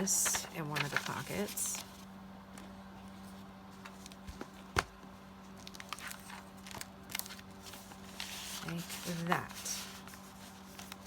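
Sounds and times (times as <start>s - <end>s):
paper tags rustling and tapping: 0.0s - 2.0s, 5.5s - 11.0s
faint steady hum: 0.0s - 11.0s.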